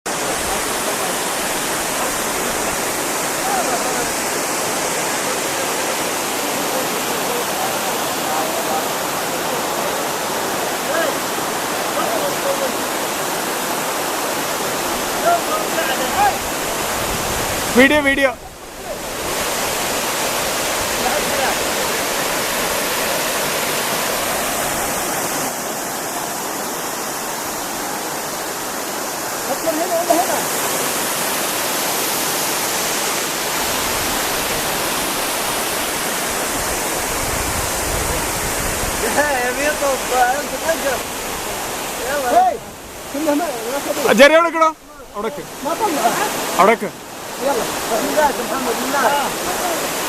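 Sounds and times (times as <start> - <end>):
waterfall rushing: 0.0 - 50.0.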